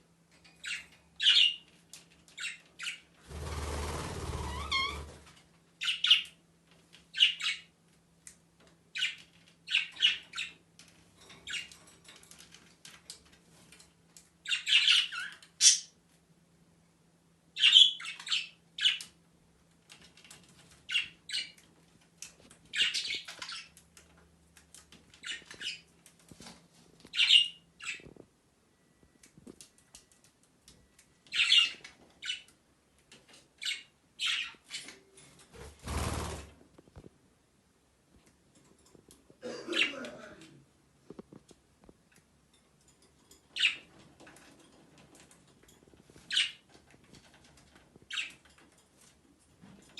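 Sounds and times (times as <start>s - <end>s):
lovebirds calling: 0.6s - 1.6s, 22.7s - 23.8s, 27.1s - 28.1s, 31.3s - 32.5s, 33.6s - 34.9s, 46.3s - 46.6s.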